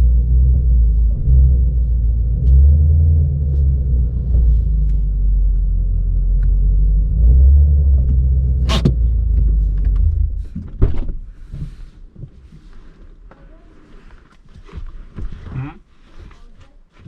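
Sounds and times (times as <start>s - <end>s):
car engine idling: 0.0s - 10.7s.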